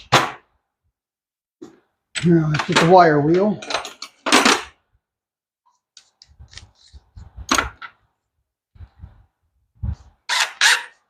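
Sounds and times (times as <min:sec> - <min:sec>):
hand tools clicking and knocking: 0:02.2 - 0:04.7.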